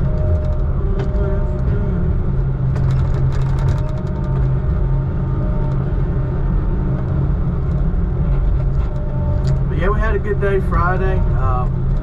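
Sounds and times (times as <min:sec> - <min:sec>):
diesel engine droning: 0:00.0 - 0:12.0
light clicks and rattles: 0:02.7 - 0:04.8.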